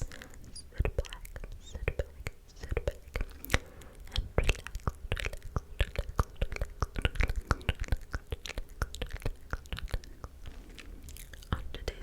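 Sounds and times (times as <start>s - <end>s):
soft whispering: 0.0s - 6.4s, 9.7s - 12.0s
wet mouth clicks and smacks: 0.0s - 12.0s.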